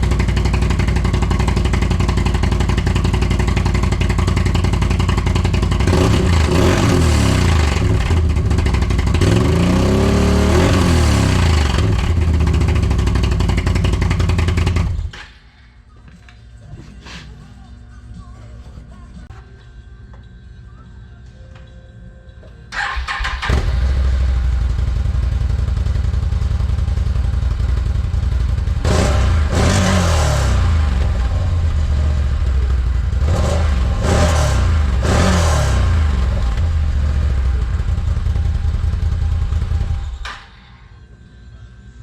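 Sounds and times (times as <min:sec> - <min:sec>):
atv engine starting and idling: 0:00.0 - 0:15.2, 0:22.7 - 0:40.3
engine revving: 0:05.0 - 0:15.1, 0:22.9 - 0:25.9, 0:28.4 - 0:40.1.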